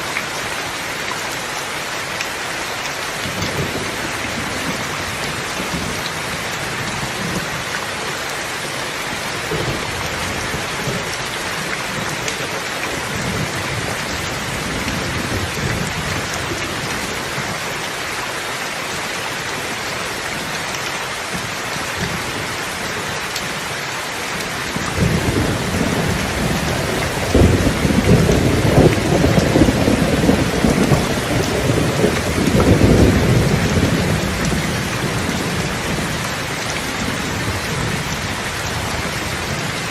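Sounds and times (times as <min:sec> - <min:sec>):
steady rain falling: 0:00.0 - 0:39.9
low rumble of thunder: 0:24.8 - 0:39.8.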